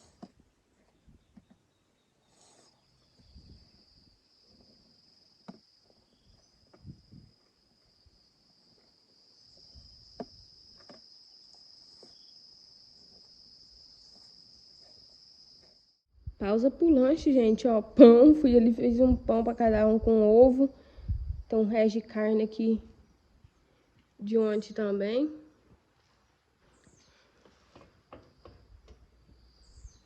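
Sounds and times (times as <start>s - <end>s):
cricket trill: 2.2s - 16.0s, 28.1s - 30.0s.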